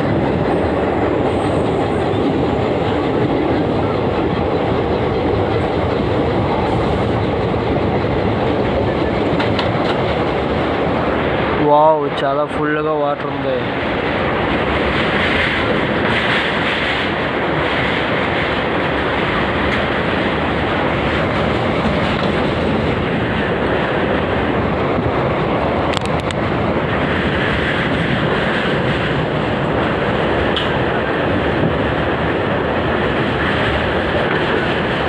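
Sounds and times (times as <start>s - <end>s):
wind on microphone: 13.7s - 35.0s.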